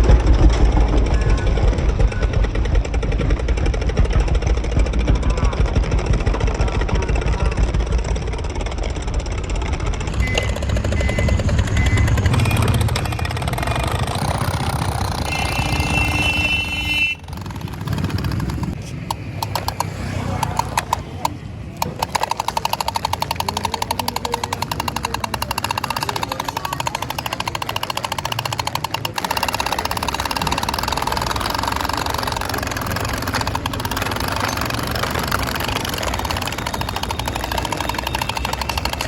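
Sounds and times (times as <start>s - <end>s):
diesel tractor engine knocking: 0.0s - 39.0s.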